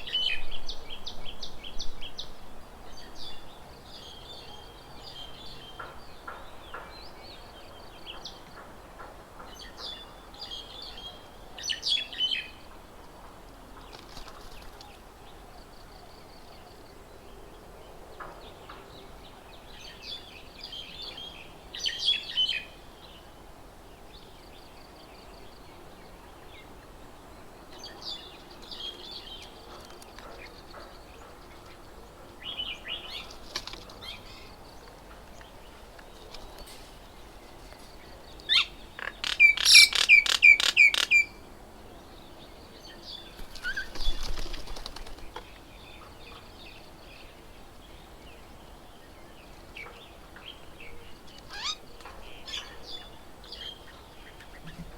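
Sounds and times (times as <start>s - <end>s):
small birds chirping: 27.7s - 54.9s.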